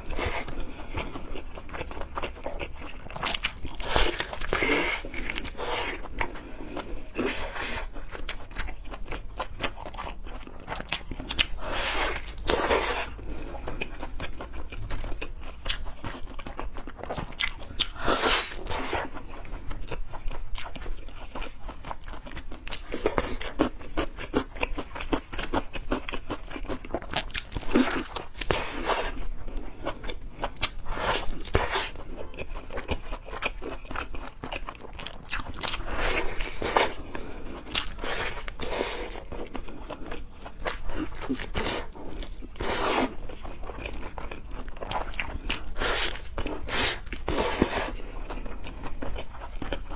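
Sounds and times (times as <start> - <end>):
crunchy chewing and biting: 0.0 - 49.9.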